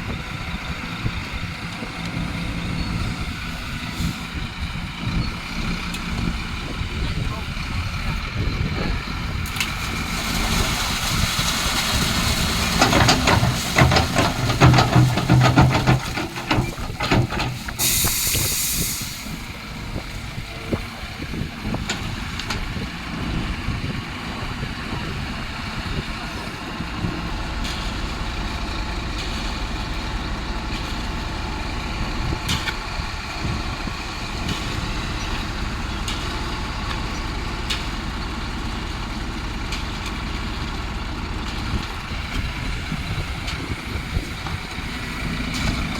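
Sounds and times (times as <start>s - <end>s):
diesel machinery running: 0.0s - 45.9s
metallic clattering and knocks: 12.6s - 17.8s
air hiss: 17.7s - 19.5s.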